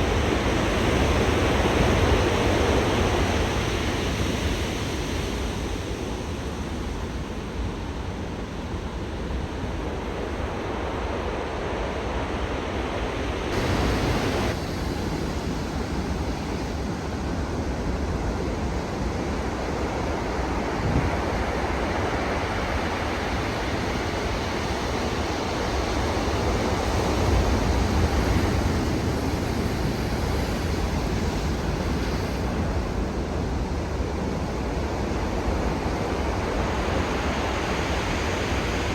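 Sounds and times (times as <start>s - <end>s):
wind rumbling on microphone: 0.0s - 38.9s
ocean waves breaking: 9.0s - 38.9s.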